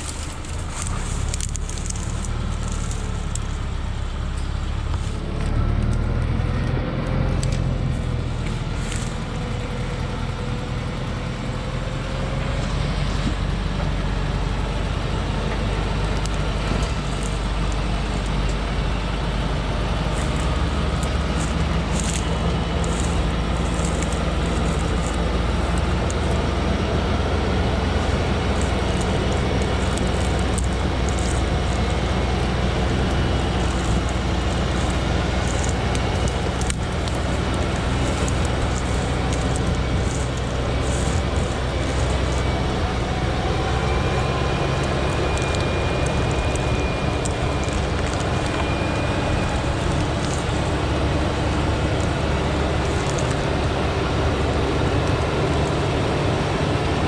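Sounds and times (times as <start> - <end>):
light ticks and rattles: 0.0 - 5.2
truck engine droning: 0.0 - 57.0.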